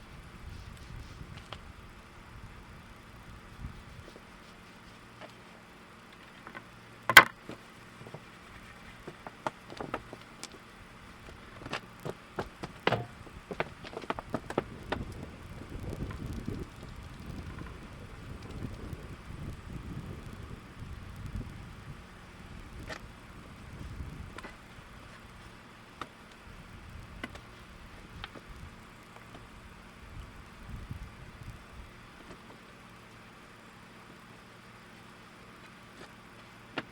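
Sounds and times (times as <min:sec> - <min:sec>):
low steady rumble: 0:00.0 - 0:36.9
wooden board clack: 0:07.1 - 0:07.4, 0:12.4 - 0:13.7.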